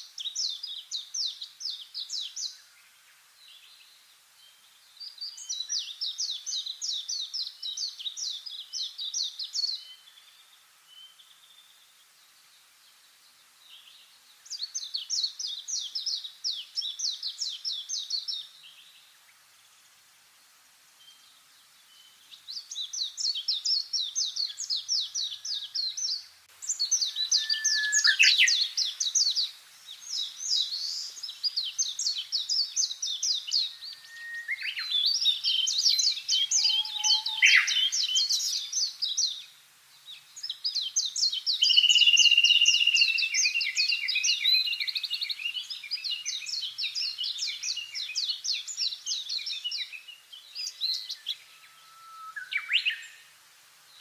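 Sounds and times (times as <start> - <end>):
songbird trilling: 22.8 - 39.4, 40.7 - 49.9.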